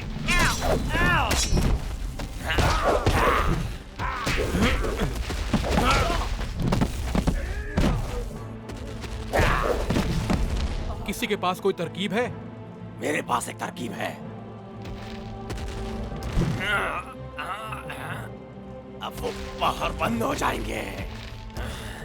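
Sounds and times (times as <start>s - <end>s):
background music: 0.0s - 22.0s
wordless shouts and grunts: 0.2s - 1.8s, 2.4s - 6.4s, 7.3s - 8.4s, 9.3s - 10.0s, 16.4s - 18.4s, 19.0s - 22.0s.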